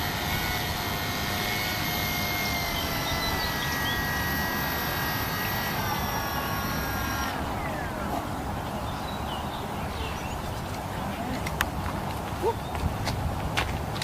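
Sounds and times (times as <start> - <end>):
electric motor and propeller whine: 0.0 - 9.8.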